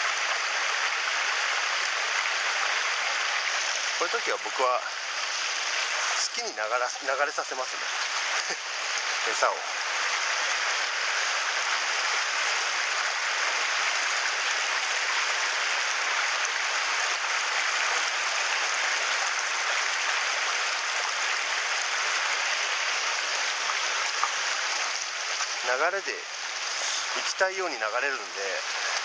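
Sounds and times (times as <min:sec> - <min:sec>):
stream rushing over rocks: 0:00.0 - 0:29.0.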